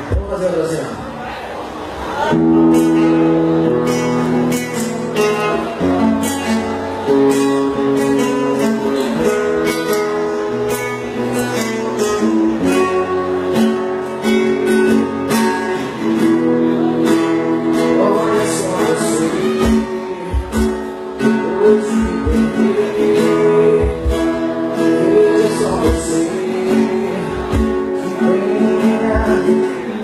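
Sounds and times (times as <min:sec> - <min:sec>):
strummed acoustic guitar: 0:01.9 - 0:30.0
steady beat: 0:19.6 - 0:22.7, 0:23.7 - 0:24.9.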